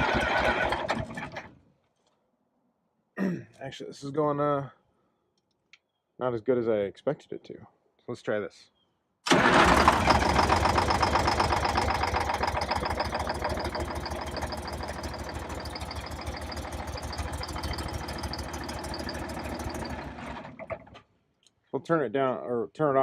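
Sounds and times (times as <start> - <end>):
diesel engine knocking: 0.0 - 1.0, 9.4 - 20.8.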